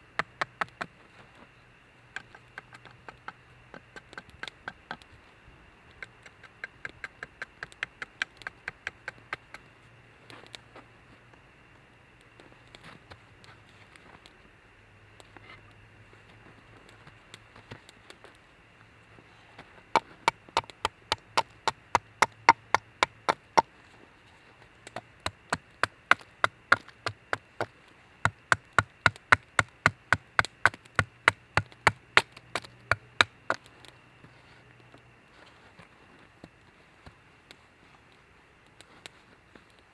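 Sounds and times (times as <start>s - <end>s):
wood being chopped: 20.0s - 23.7s, 28.3s - 33.6s.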